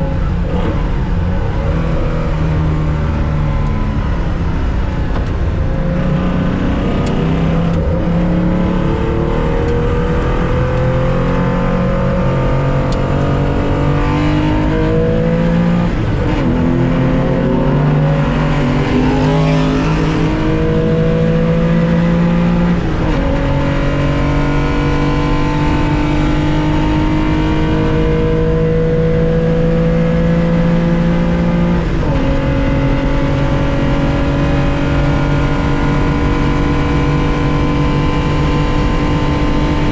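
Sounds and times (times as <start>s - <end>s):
car engine accelerating hard: 0.0s - 39.9s
gear upshifts: 12.5s - 28.5s.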